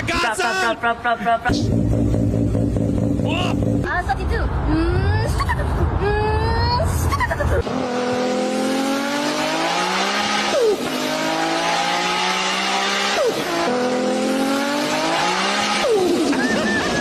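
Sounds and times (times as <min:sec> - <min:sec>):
woman imitating car engine: 0:04.7 - 0:08.0.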